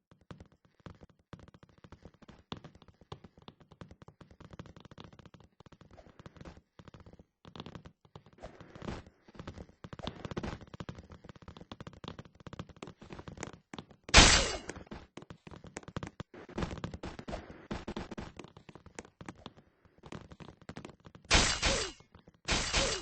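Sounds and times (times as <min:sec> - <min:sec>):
loud sharp crackle: 0:14.2 - 0:14.7.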